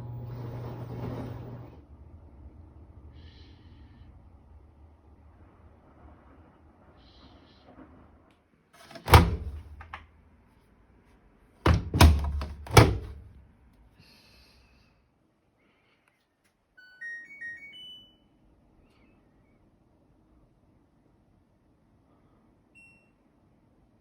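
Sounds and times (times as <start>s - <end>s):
washer door shutting with thunk: 8.8s - 10.0s, 11.7s - 13.4s.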